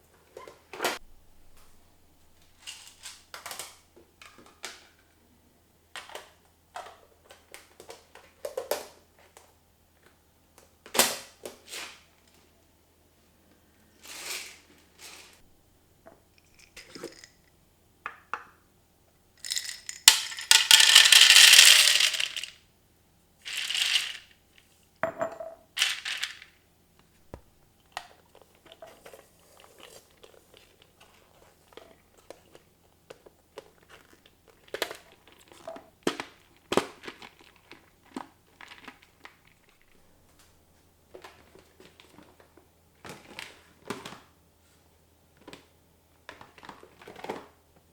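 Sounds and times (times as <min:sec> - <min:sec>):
plastic packaging crinkling: 0:19.4 - 0:22.5, 0:23.5 - 0:24.3, 0:25.8 - 0:26.5.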